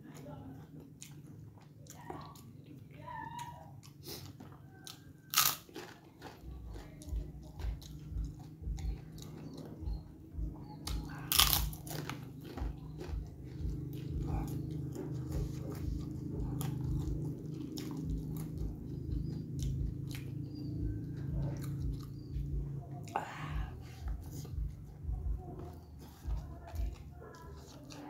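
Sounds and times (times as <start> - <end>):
close-up chewing: 0.0 - 28.0
loud cracker crunch: 4.0 - 6.9, 10.9 - 13.2.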